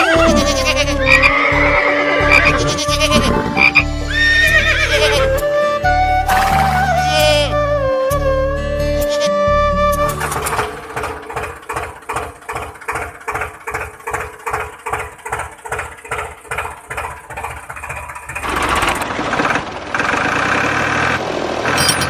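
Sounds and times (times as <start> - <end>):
engine chugging: 0.0 - 8.3, 9.0 - 22.0.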